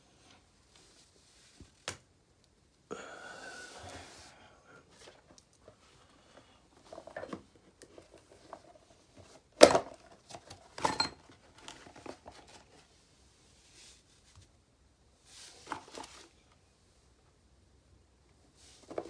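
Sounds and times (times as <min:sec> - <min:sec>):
rustling: 0:10.2 - 0:14.6, 0:18.5 - 0:19.0.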